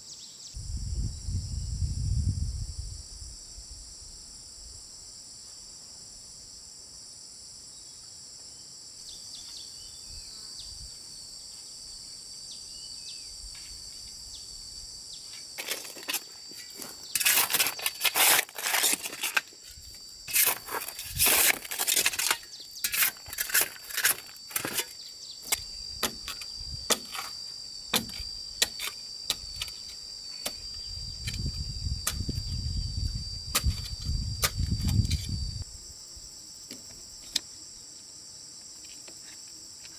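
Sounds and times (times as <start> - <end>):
insects droning: 0.0 - 39.9
sharp knocks and scrapes: 15.6 - 35.4.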